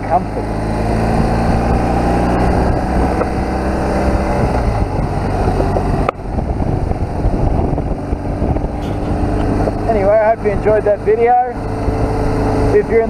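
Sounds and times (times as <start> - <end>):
motorcycle engine running: 0.0 - 13.0
tyre noise on road: 0.0 - 13.0
wind noise: 0.4 - 13.0.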